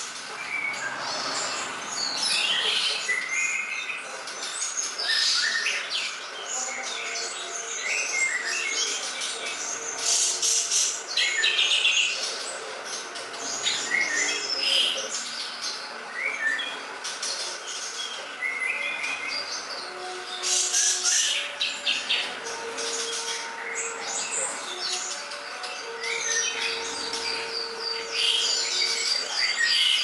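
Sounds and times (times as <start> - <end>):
songbird chirps and whistles: 17.7 - 30.0.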